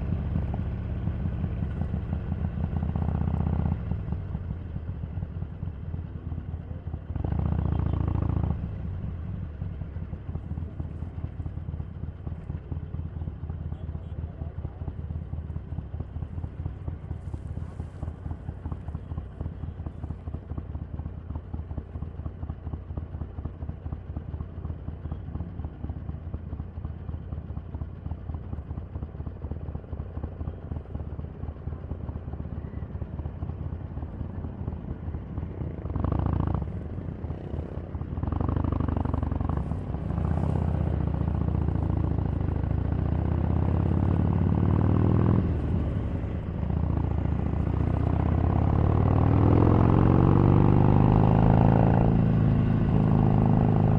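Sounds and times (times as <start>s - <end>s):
motorcycle engine idling: 0.0s - 53.9s
motorcycle riding under load: 0.0s - 53.9s.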